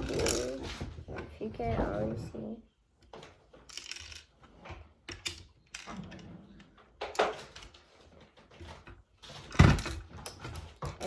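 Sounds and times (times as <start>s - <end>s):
plastic bricks clicking and rattling: 0.0s - 0.6s, 3.7s - 4.3s.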